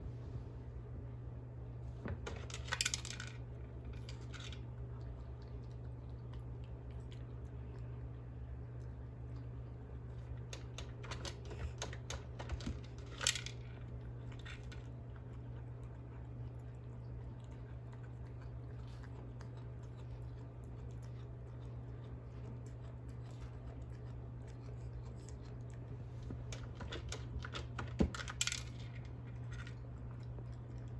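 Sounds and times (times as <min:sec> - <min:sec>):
steady low hum: 0:00.0 - 0:30.9
dry kibble clattering into bowl: 0:02.1 - 0:04.6, 0:10.5 - 0:14.8, 0:26.5 - 0:29.8.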